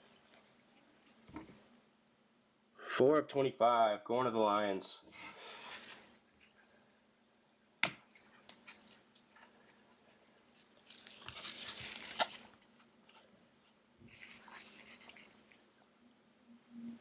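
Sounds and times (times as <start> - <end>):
rustling scrape: 5.1 - 6.8, 10.2 - 15.6
cards and plastic packaging handled: 5.2 - 6.8, 7.8 - 15.6.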